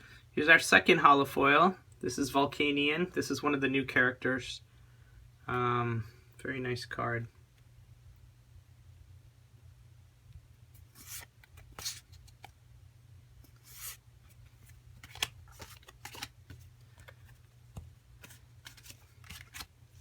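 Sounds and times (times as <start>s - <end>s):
low steady hum: 0.0s - 20.0s
cards rustling swishes: 10.8s - 12.6s, 13.4s - 20.0s.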